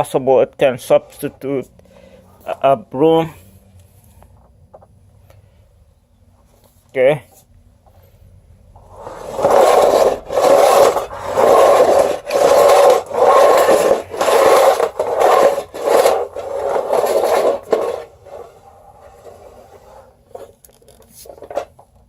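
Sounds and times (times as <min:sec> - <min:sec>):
carpet sweeper on hard floor: 0:08.8 - 0:20.5.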